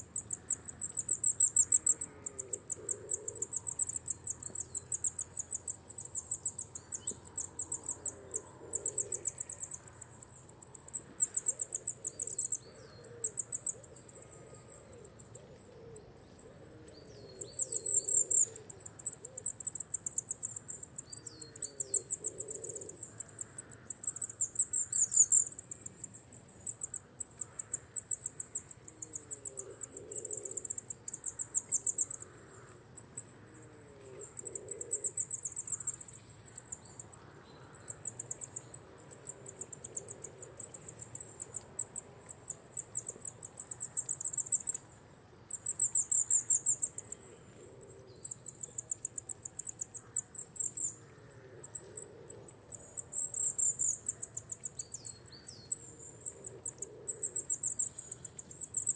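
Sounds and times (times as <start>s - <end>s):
insect trilling: 45.5s - 58.9s.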